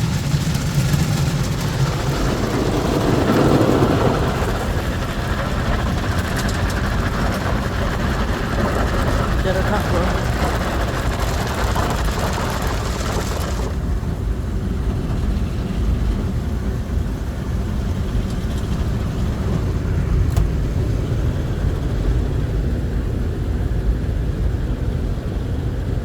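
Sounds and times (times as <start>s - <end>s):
low machine rumble: 0.0s - 26.0s.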